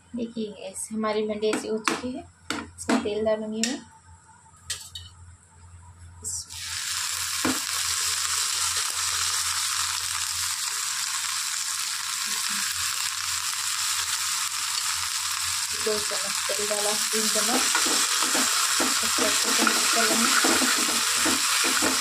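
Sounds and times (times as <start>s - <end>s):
okra sizzling in a pan: 6.4s - 22.0s.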